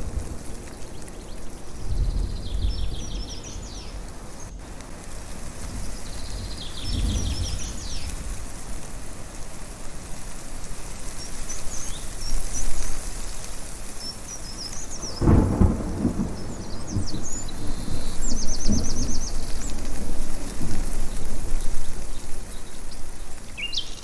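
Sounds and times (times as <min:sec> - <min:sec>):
thunder rumbling: 0:00.0 - 0:09.0, 0:14.7 - 0:23.5
strong wind hissing: 0:00.0 - 0:24.0
birds chirping: 0:00.6 - 0:04.6, 0:05.6 - 0:08.3, 0:11.1 - 0:24.0.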